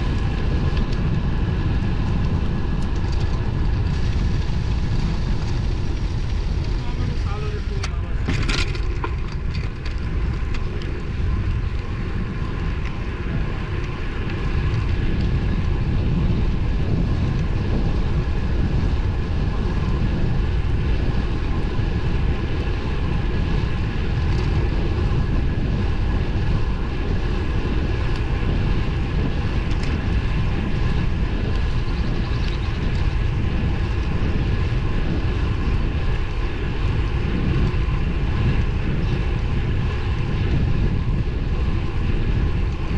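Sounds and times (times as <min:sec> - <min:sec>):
road noise: 0:00.0 - 0:42.9
wind rushing over microphone: 0:00.0 - 0:42.9.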